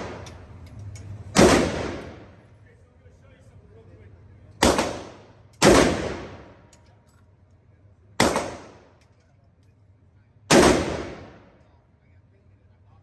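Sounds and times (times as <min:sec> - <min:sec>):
gunshots: 0:00.0 - 0:00.3, 0:01.4 - 0:02.3, 0:04.6 - 0:06.6, 0:08.2 - 0:08.9, 0:10.5 - 0:11.5.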